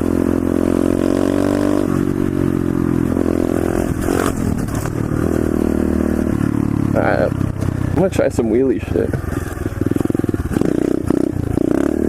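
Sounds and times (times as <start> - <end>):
pit bike engine running: 0.0 - 12.0
rough scraping clatter: 3.6 - 6.6.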